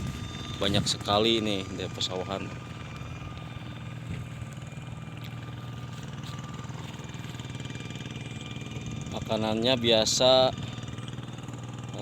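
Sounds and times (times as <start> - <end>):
small engine humming: 0.0 - 12.0.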